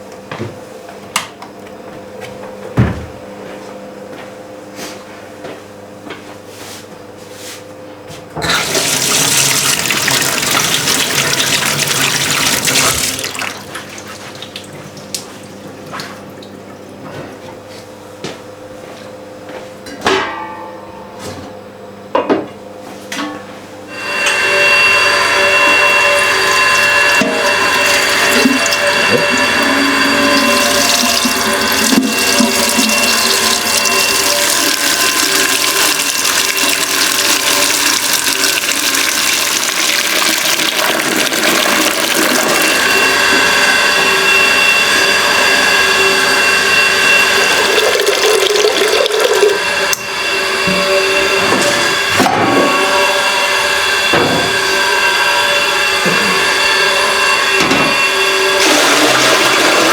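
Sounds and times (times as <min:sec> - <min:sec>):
running liquid rushing: 0:08.5 - 0:16.5, 0:25.9 - 0:43.1, 0:47.3 - 0:49.7
steady ringing tones: 0:23.8 - 0:59.9.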